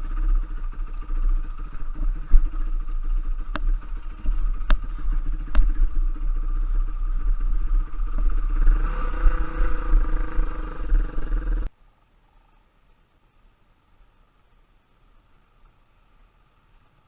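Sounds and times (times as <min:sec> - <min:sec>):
trail bike engine rumbling: 0:00.0 - 0:11.7.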